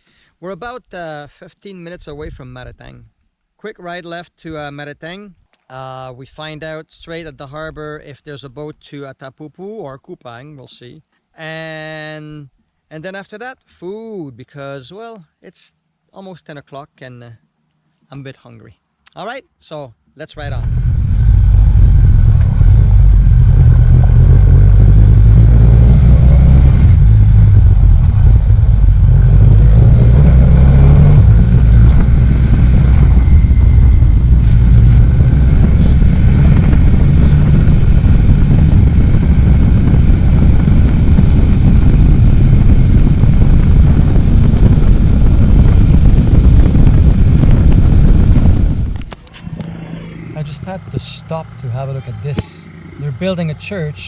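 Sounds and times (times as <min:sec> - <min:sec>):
motorcycle engine running: 0:20.4 - 0:54.0
wind rumble on microphone: 0:20.4 - 0:54.0.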